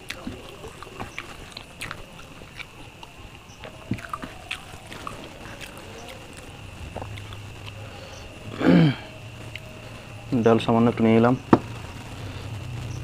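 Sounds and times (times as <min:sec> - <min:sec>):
man chewing with wet smacks: 0:00.0 - 0:08.6, 0:09.4 - 0:09.8.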